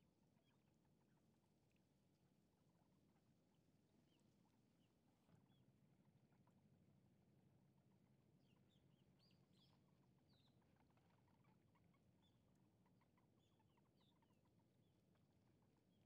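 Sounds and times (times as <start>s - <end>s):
faint bird chirps: 8.4s - 16.0s.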